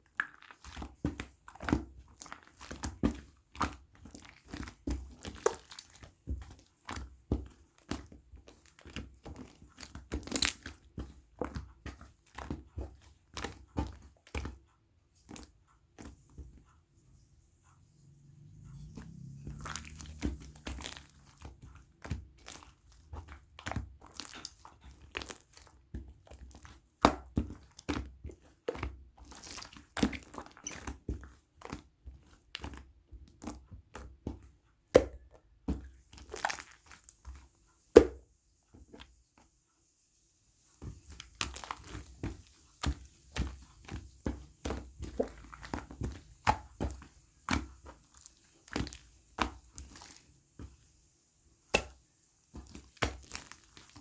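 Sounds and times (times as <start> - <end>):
crunching and crinkling: 18.7 - 26.8, 29.2 - 31.3, 36.1 - 37.2, 41.0 - 50.3, 52.6 - 54.0.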